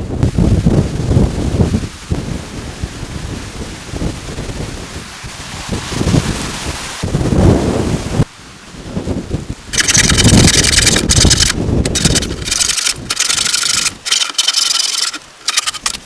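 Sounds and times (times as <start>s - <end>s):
wind gusts rumbling: 0.0s - 16.0s
rain hiss: 0.1s - 16.0s.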